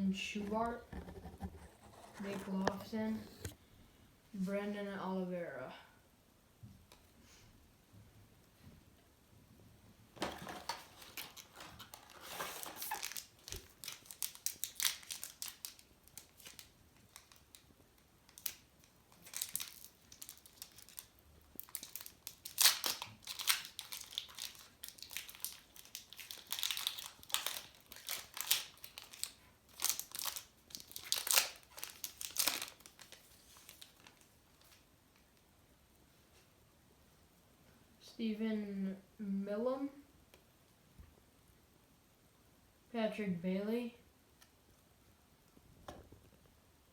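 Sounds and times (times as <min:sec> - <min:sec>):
card pack wrappers crinkling: 0:10.2 - 0:17.7, 0:18.3 - 0:34.8.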